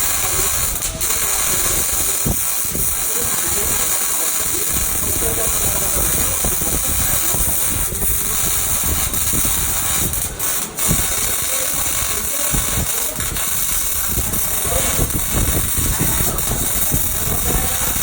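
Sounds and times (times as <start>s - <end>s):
welding arc crackling and hissing: 0.0s - 18.0s.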